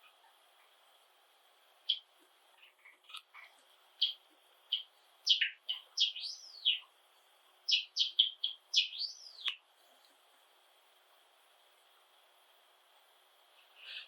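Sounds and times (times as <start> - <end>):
sparrow singing: 4.0 - 6.9, 7.7 - 9.6.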